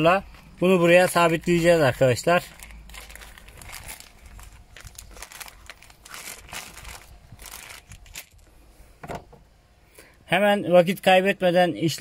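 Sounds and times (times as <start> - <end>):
crinkling and rustling: 0.3 - 9.4.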